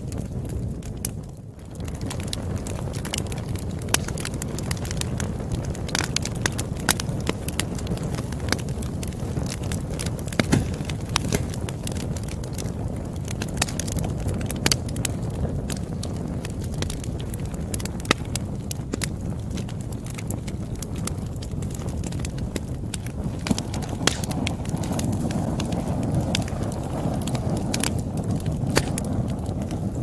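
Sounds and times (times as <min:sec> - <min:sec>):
fire pops and snaps: 0:00.0 - 0:30.0
wood fire crackling: 0:00.0 - 0:30.0.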